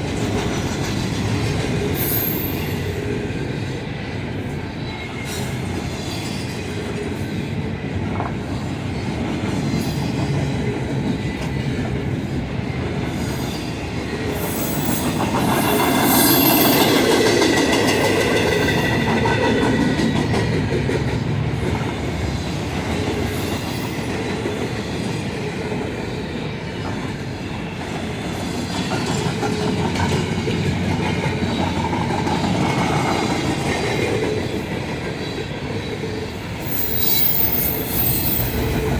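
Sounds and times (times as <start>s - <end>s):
train wheels clacking over rail: 0.0s - 3.2s, 8.0s - 25.7s, 36.6s - 38.9s
metallic wheel squeal: 14.4s - 17.1s, 36.6s - 38.9s.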